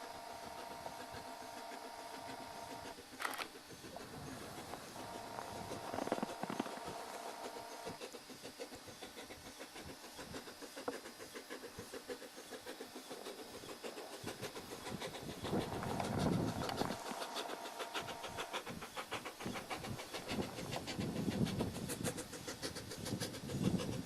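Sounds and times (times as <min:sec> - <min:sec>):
steam hissing: 0:00.0 - 0:24.0.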